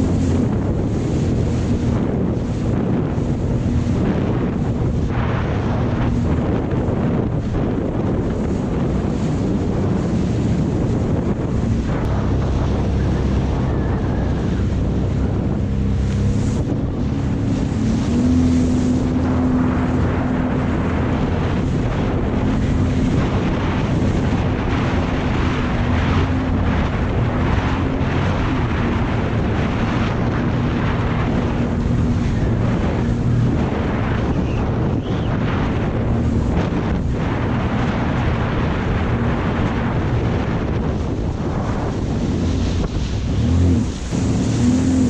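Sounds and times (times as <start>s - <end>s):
jet ski engine running: 0.0s - 45.0s
wind buffeting microphone: 0.0s - 45.0s.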